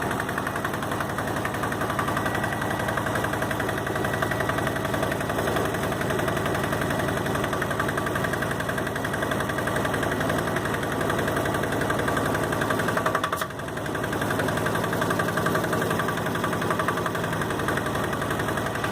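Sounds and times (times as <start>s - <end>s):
diesel engine knocking: 0.0s - 18.9s.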